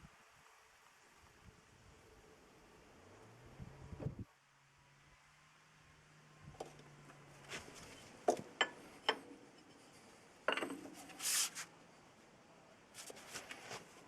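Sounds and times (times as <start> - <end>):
metal scrape: 9.5 - 11.7
metallic clinks and knocks: 10.5 - 11.0
brief hiss: 11.0 - 11.7.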